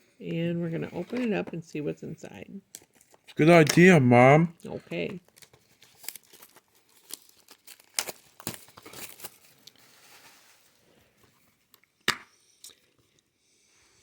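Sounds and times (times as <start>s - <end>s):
plastic shrink-wrap tearing: 5.2s - 10.7s.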